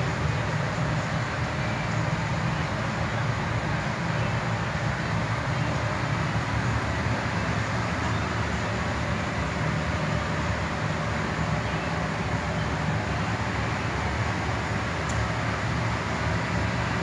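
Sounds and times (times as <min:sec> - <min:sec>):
steady low rumble with hiss: 0:00.0 - 0:17.0.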